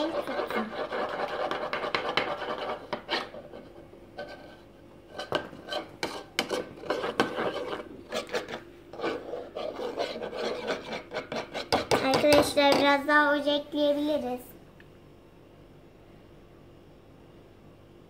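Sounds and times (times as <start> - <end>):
spoon stirring slime in bowl: 0.0 - 13.0.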